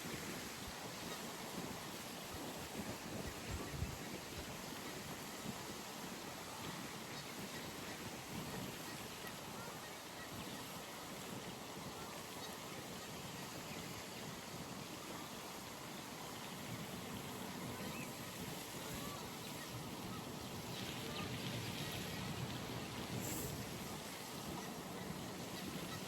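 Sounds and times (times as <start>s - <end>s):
faint waterfowl calls: 17.5s - 26.0s.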